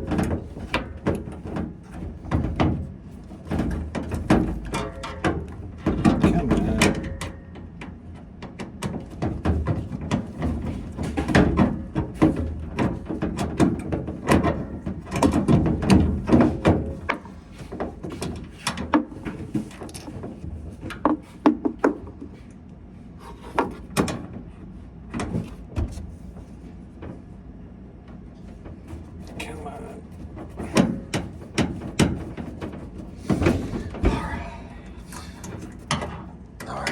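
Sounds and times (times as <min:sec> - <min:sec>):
hands handling washing machine parts: 0:30.0 - 0:36.4.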